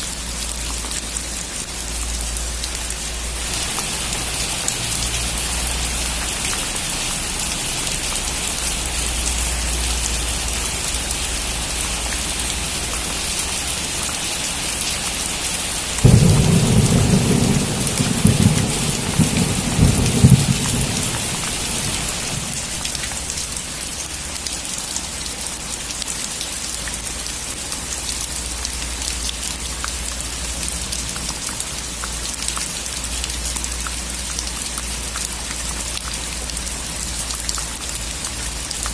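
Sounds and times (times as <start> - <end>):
heavy rain hissing: 0.1 - 25.2
thunder clap rumbling: 16.0 - 23.0.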